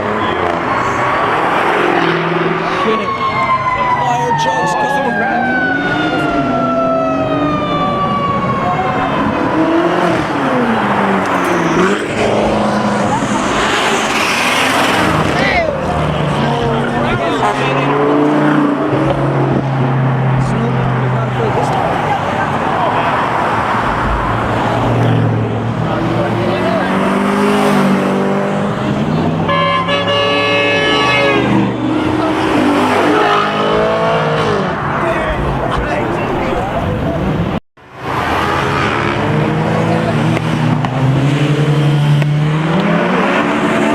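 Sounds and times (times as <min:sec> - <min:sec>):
car engines revving: 0:00.0 - 0:43.9
siren wailing: 0:00.1 - 0:14.8, 0:29.5 - 0:37.6.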